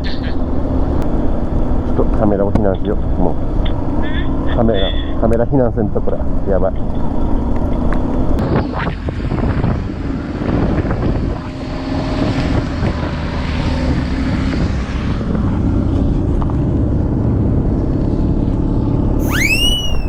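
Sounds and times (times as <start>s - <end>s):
wind buffeting microphone: 6.8s - 17.8s.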